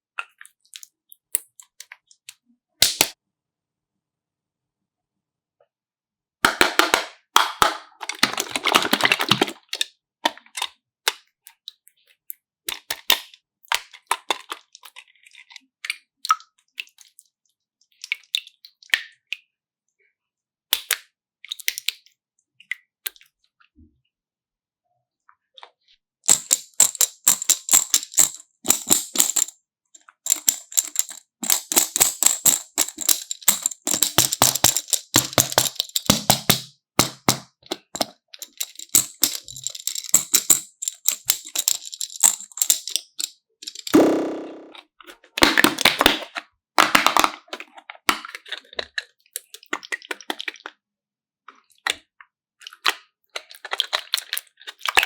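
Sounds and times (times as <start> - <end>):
crisp crackling and clicking: 26.3 - 44.7.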